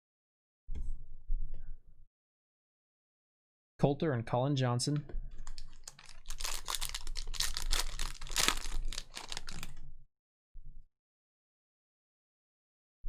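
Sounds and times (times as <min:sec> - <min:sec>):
foil wrapper crinkling and tearing: 0:05.4 - 0:09.7.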